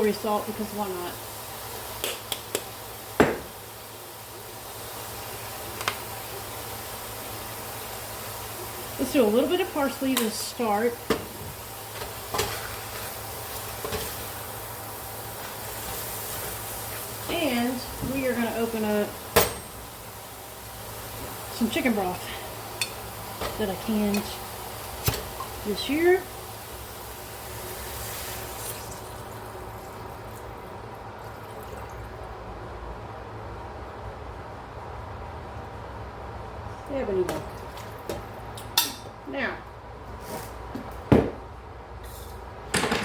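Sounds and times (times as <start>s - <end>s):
chicken and vegetables sizzling: 0.0s - 31.6s
broth pouring into a pot: 0.0s - 32.4s
knock: 3.2s - 3.5s, 41.1s - 41.4s.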